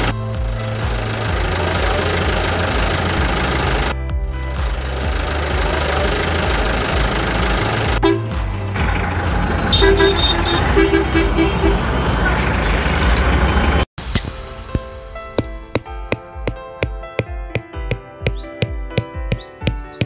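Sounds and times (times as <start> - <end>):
vehicle engine running: 0.0 - 13.9
horn short toots: 8.0 - 8.4, 9.7 - 11.8.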